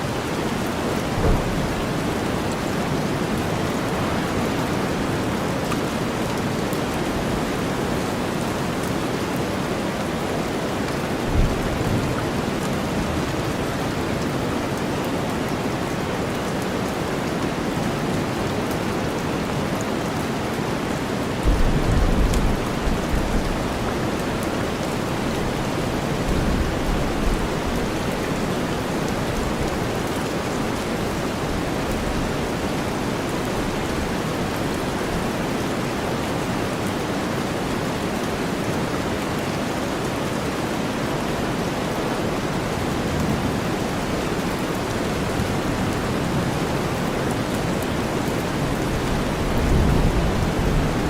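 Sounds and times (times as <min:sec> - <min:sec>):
steady rain: 0:00.0 - 0:51.0
thunder rumble: 0:00.4 - 0:05.6, 0:21.4 - 0:24.1.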